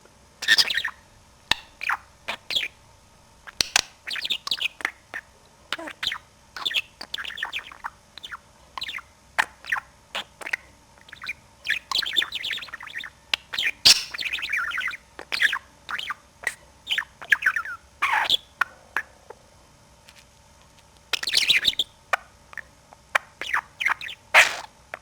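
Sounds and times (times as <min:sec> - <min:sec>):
budgerigar chattering: 0:00.4 - 0:02.8, 0:03.5 - 0:19.4, 0:21.1 - 0:25.0
sharp click: 0:03.5 - 0:03.9.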